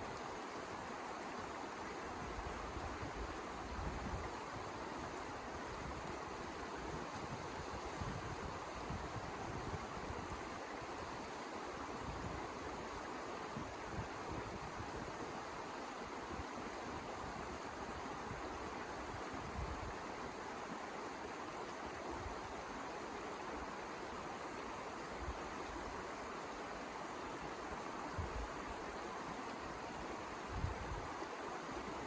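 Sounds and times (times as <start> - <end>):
wind gusts buffeting microphone: 6.8 - 10.4.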